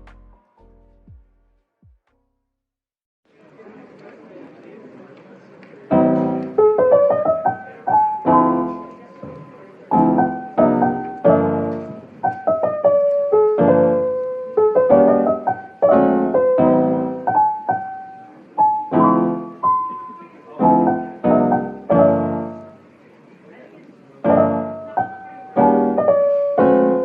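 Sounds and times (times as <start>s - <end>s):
solo piano music: 5.9s - 22.9s, 24.2s - 27.0s.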